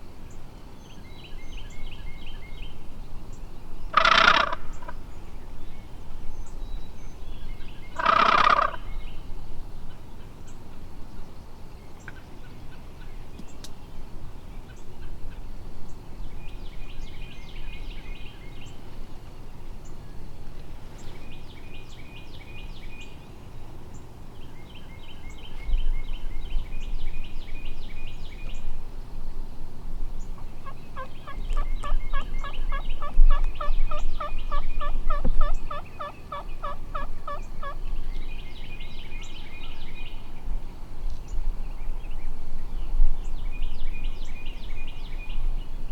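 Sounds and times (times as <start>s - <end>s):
turkey yelping: 8.0s - 8.8s, 34.2s - 37.8s.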